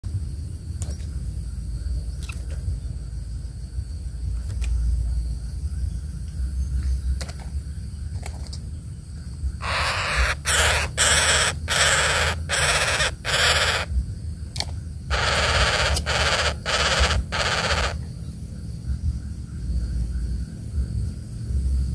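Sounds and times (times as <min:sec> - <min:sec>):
steady low rumble: 0:00.0 - 0:21.9
bird harsh rasping calls: 0:09.6 - 0:14.0, 0:15.1 - 0:18.1.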